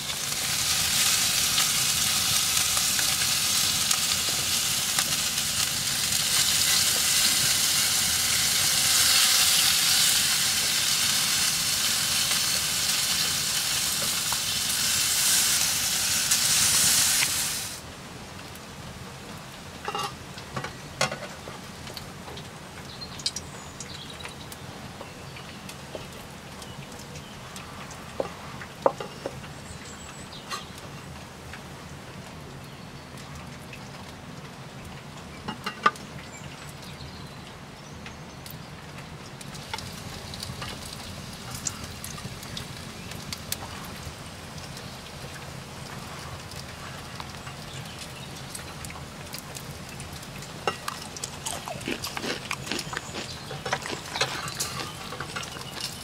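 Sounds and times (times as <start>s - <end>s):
bacon sizzling in a hot pan: 0.0s - 17.8s, 39.5s - 56.0s
small crackles and clicks: 35.9s - 56.0s.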